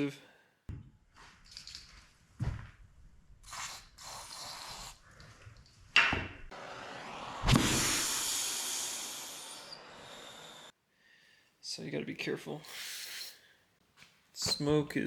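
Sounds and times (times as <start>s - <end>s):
aerosol can spraying: 3.4s - 5.0s, 7.4s - 9.7s.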